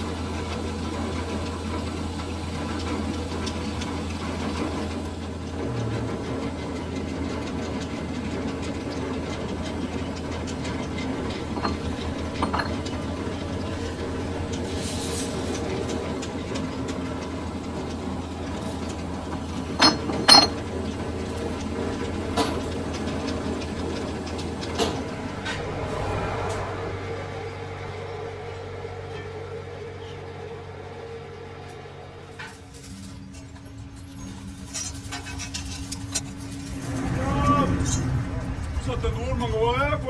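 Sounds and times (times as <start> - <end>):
metal lathe humming: 0.0 - 32.5
sharp metallic clinks: 19.8 - 20.6.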